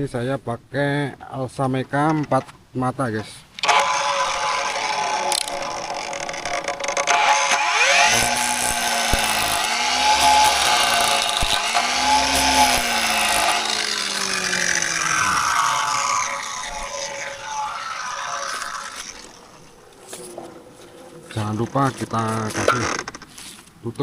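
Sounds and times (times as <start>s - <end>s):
power tool cutting into wood: 3.6s - 19.8s.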